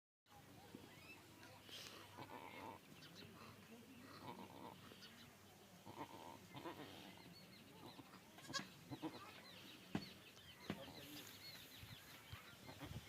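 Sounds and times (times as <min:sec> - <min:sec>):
goat bleating softly: 0:05.8 - 0:07.0, 0:07.8 - 0:09.4.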